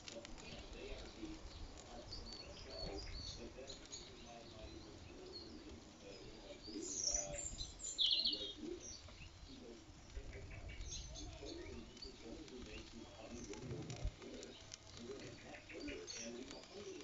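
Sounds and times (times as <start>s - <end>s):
birds calling: 0.0s - 17.0s
bright bird chirps: 2.1s - 9.5s.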